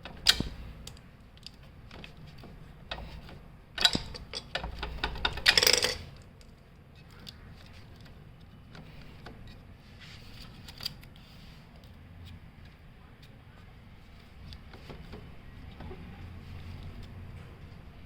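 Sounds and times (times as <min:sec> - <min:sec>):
metal tools clicking and clattering: 0:03.8 - 0:06.2.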